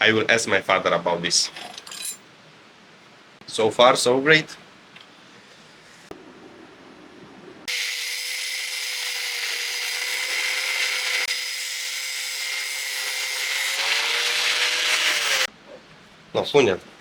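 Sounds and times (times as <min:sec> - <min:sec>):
angle grinder on steel: 0:07.7 - 0:15.5.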